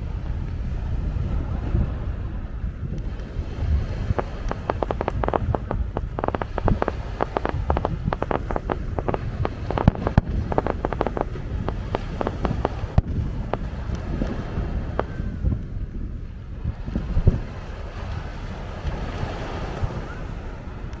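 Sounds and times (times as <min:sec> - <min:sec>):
low rumble: 0:00.0 - 0:19.2
fireworks crackling: 0:04.0 - 0:13.7
fireworks bangs: 0:04.1 - 0:13.2.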